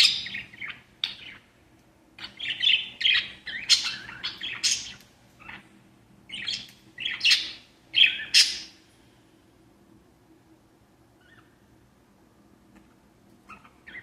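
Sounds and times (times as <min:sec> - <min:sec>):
parrots chirping and squawking: 0:00.0 - 0:01.4, 0:02.2 - 0:05.6, 0:06.3 - 0:08.8, 0:13.5 - 0:14.0.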